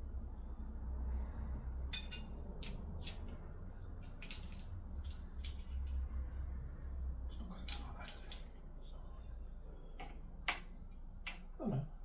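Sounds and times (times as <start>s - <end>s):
light clicks and taps of parts: 4.0s - 6.5s, 7.3s - 8.6s, 10.0s - 11.5s.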